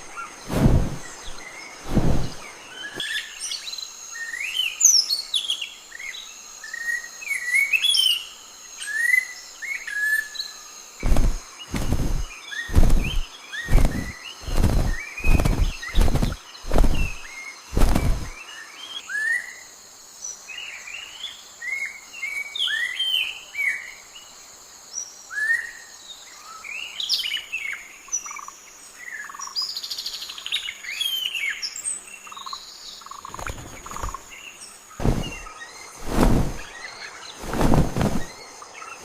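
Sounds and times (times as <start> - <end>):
wild birds chirping: 0.0 - 19.4, 26.4 - 39.0
loud thuds: 35.0 - 36.6.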